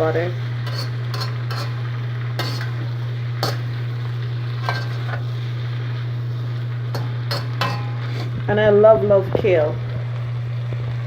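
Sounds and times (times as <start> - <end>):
chicken sizzling in a pan: 0.0 - 11.0
steady low hum: 0.0 - 11.0
utensil scraping a pan: 0.6 - 3.7, 4.6 - 5.3, 6.9 - 8.4.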